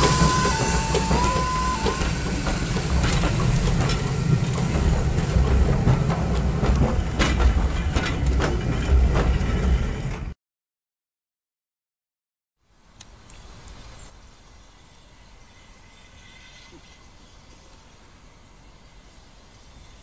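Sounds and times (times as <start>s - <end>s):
train wheels clacking over rail joints: 0.0s - 10.3s
passing train rumble: 0.0s - 10.4s.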